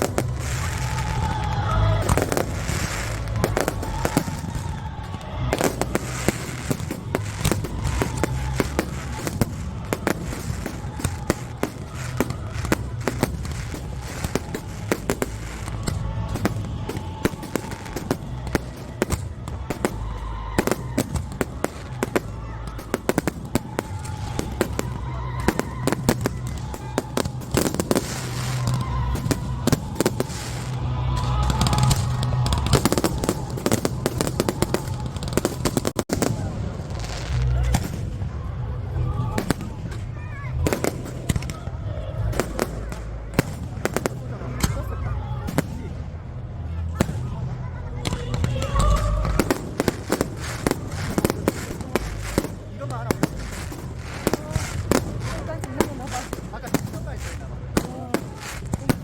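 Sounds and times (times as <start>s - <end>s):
music playing: 0.0s - 39.4s
fireworks bangs and crackling: 0.0s - 59.0s.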